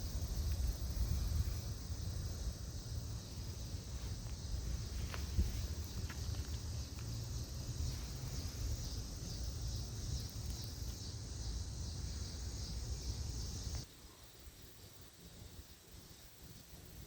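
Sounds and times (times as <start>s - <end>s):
high even hiss: 0.0s - 17.0s.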